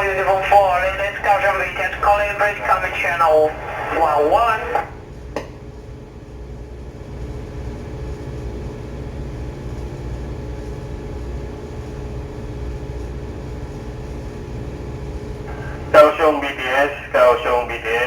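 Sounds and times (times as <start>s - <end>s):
steady tones: 0.0s - 5.0s, 15.5s - 18.0s
ship machinery hum: 0.0s - 6.1s, 10.2s - 18.0s.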